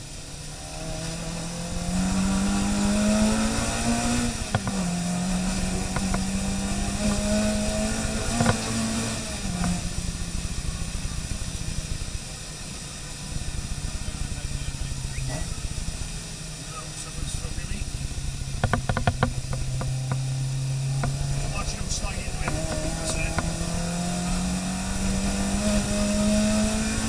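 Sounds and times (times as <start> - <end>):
car engine revving: 0.0 - 27.0
sharp clicks: 18.5 - 20.3.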